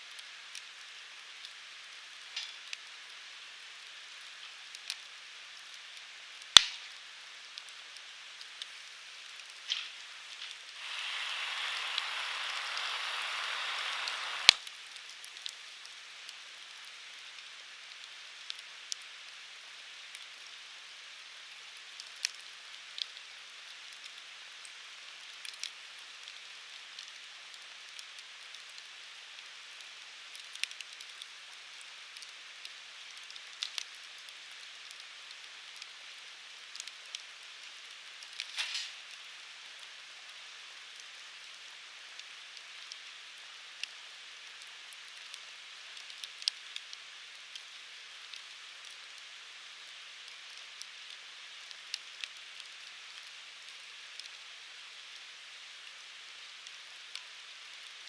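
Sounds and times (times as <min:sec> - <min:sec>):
fire crackles and pops: 0:00.0 - 0:58.0
firewood burning with hiss: 0:00.0 - 0:58.0.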